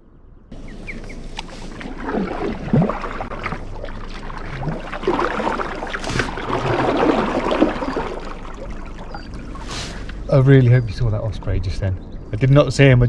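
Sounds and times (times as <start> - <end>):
water splashing from paddling: 0.5 - 10.4.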